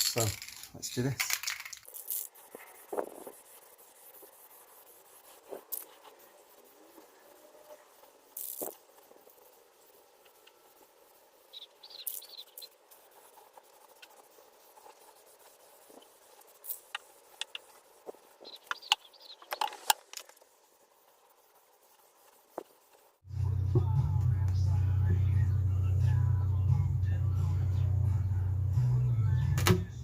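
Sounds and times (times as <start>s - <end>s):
hissy scrapes: 0.0s - 23.2s.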